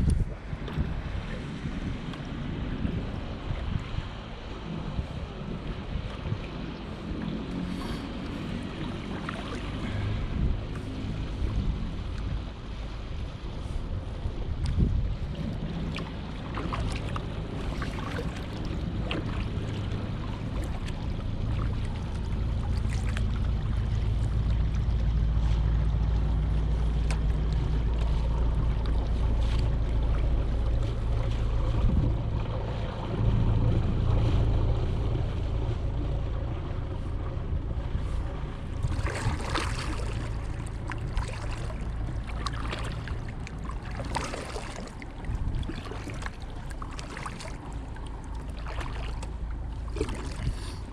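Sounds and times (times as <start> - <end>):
kayak paddle splashes: 0.0 - 50.9
steady low rumble: 0.0 - 50.9.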